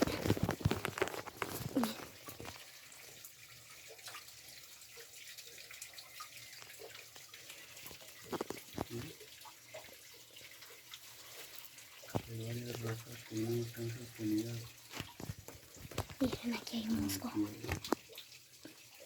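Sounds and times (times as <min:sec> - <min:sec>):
small water drips: 0:00.0 - 0:19.0
water trickling among rocks: 0:00.0 - 0:19.0.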